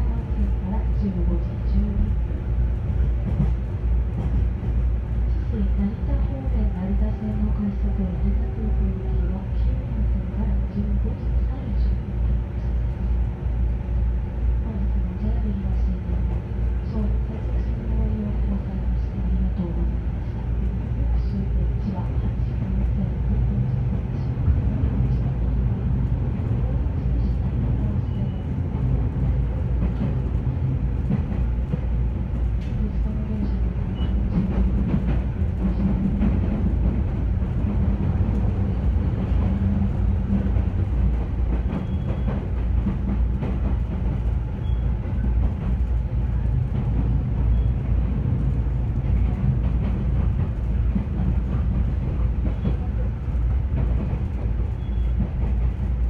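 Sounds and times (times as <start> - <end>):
train low rumble: 0.0 - 56.0.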